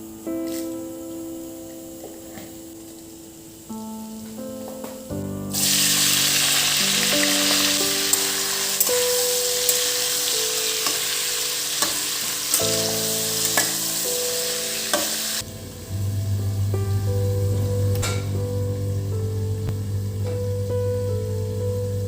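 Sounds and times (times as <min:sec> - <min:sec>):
gentle background music: 0:00.0 - 0:22.0
food sizzling in a pan: 0:05.5 - 0:15.4.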